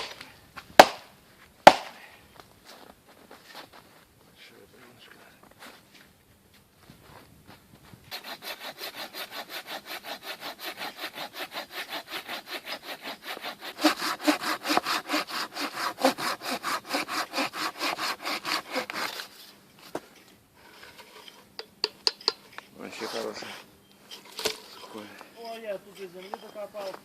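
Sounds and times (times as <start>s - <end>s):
hand saw cutting wood: 8.1s - 19.5s.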